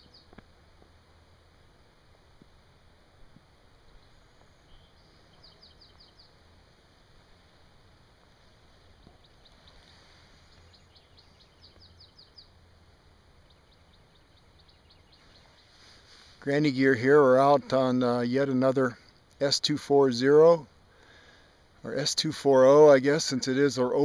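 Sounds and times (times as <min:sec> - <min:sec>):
bird chirping: 0:00.0 - 0:00.4, 0:03.8 - 0:06.5, 0:08.4 - 0:19.6.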